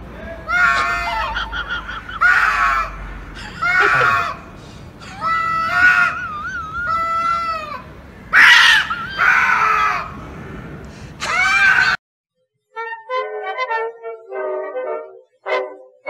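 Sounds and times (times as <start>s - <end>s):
cats screeching: 0.2s - 10.2s, 11.2s - 12.0s
cats yowling: 0.2s - 10.2s, 11.2s - 12.0s.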